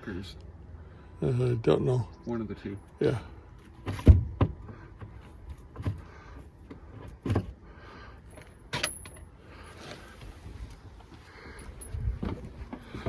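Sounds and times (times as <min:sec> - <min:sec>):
tools and debris clattering: 0:08.3 - 0:10.0.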